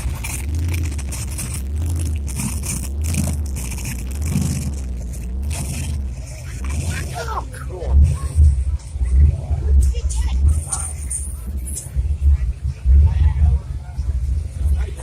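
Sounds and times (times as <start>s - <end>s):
scraping and rustling: 0.0s - 7.3s
low rumble: 0.0s - 15.0s.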